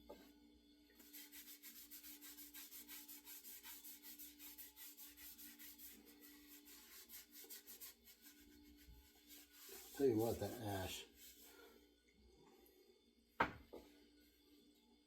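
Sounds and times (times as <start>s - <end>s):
rubbing strokes on wooden handle: 1.0s - 11.6s.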